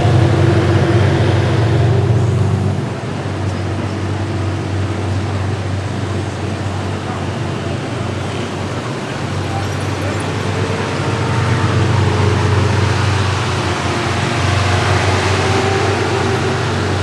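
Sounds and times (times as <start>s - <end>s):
low engine drone: 0.0s - 5.7s
road noise: 0.0s - 17.0s.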